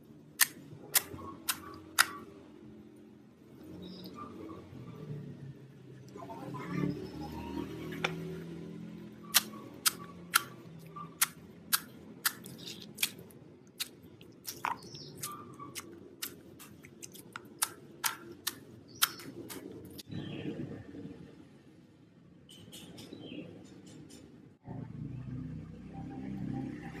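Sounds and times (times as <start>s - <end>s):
slime squishing: 11.2s - 20.0s.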